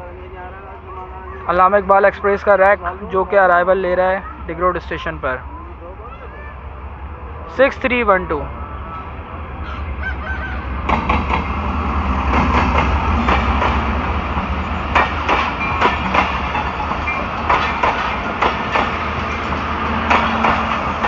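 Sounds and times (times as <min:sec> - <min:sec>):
diesel locomotive rumbling: 0:00.0 - 0:21.0
wheels knocking over rail joints: 0:14.9 - 0:21.0.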